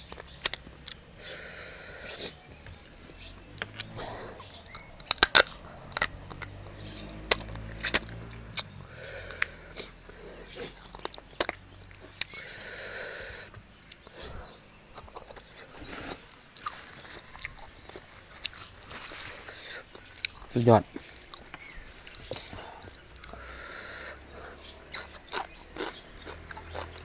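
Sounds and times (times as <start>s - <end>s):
chewing and crunching food: 0.0s - 27.0s
sharp cracks and clicks: 4.7s - 6.7s.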